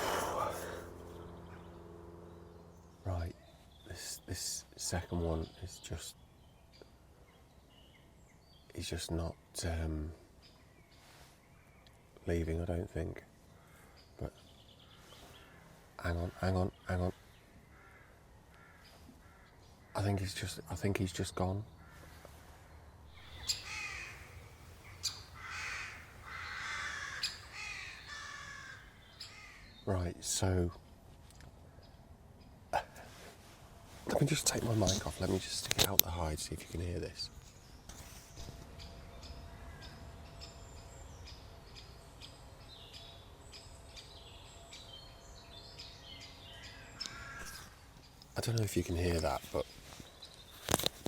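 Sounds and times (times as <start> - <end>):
harsh rasping bird calls: 0.0 - 8.9, 13.3 - 30.6, 31.6 - 51.0
woodpeckers short sharp calls: 21.8 - 29.9, 45.8 - 48.4.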